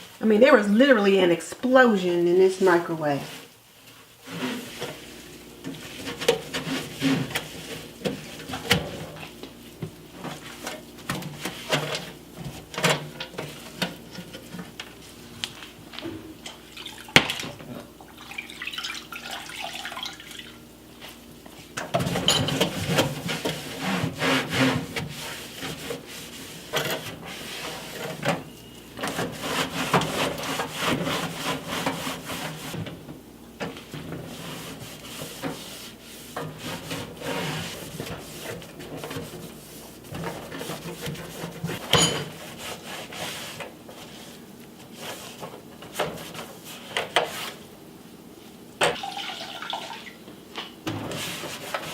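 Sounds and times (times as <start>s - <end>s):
scrubbing inside a microwave: 4.2s - 15.2s, 21.0s - 32.9s, 33.8s - 47.6s.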